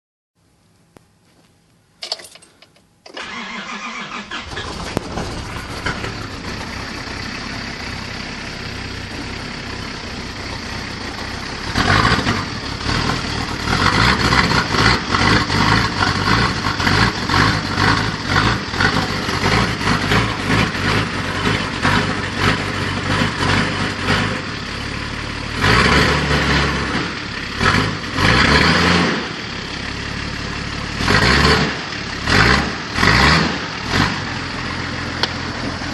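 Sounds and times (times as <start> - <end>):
engine cranking: 2.0 - 7.4
engine idling and revving: 3.1 - 35.9.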